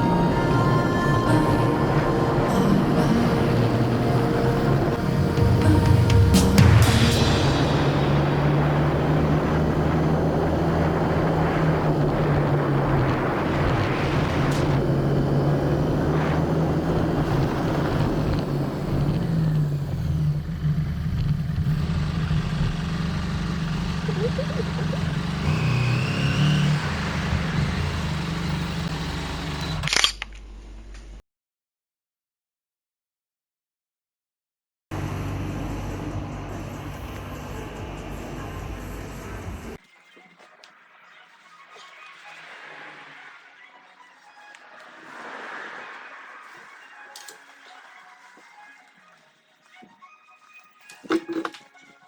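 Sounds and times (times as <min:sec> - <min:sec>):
motorcycle engine running: 0:00.0 - 0:29.9, 0:34.9 - 0:39.8
wind and road noise: 0:00.0 - 0:31.2, 0:34.9 - 0:39.8, 0:44.8 - 0:47.1.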